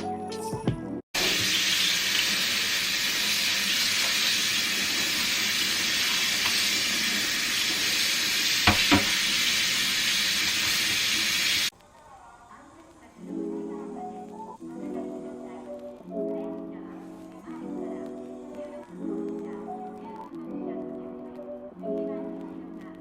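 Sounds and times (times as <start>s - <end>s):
food sizzling in a frying pan: 1.2s - 11.8s
utensil knocks: 8.6s - 9.2s.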